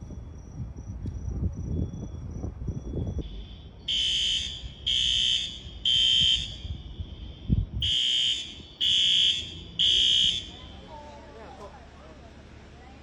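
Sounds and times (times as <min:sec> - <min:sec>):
fire alarm beeping: 0:02.8 - 0:10.9.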